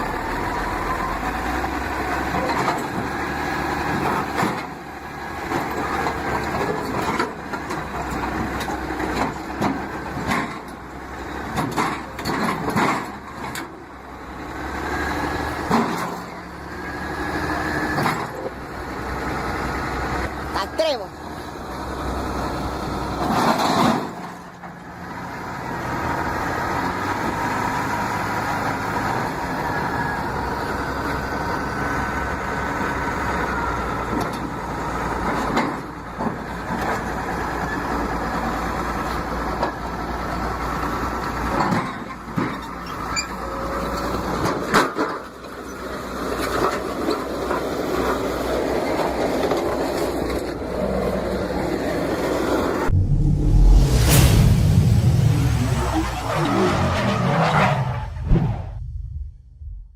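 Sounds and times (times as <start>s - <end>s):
heavy diesel engine running: 0.0s - 57.3s.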